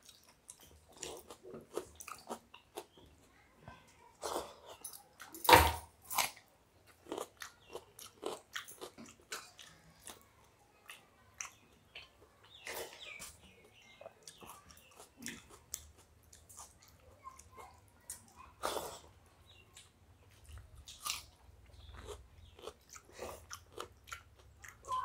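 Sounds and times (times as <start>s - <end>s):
people chewing wet food: 0.0s - 5.4s, 6.2s - 25.0s.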